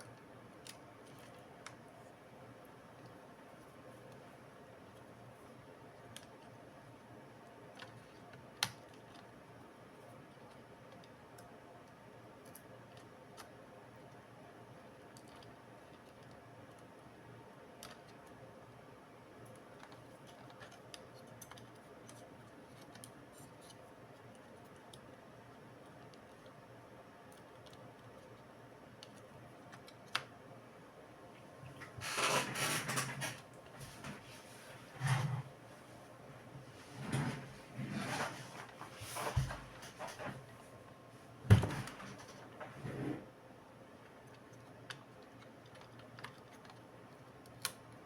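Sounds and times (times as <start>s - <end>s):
light clicks of tools and plastic: 19.4s - 25.2s.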